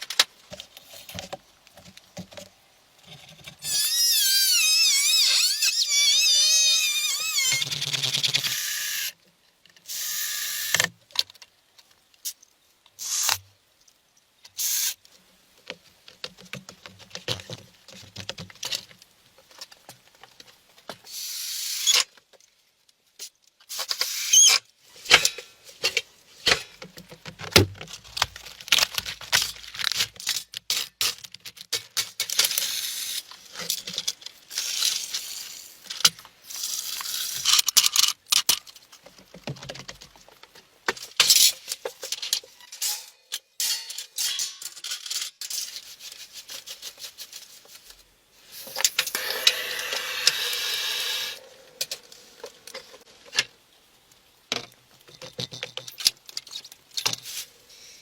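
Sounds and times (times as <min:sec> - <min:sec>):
rustling and scraping: 0:33.2 - 0:50.5, 0:55.0 - 0:58.0.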